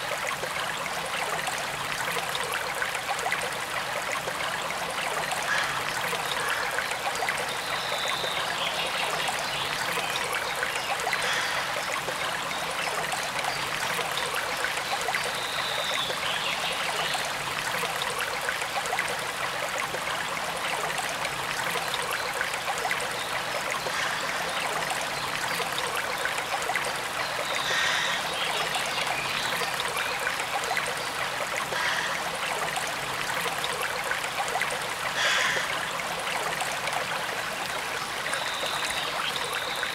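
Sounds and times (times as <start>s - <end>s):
stream water rushing: 0.0s - 39.9s
faint bird calls: 27.6s - 28.8s.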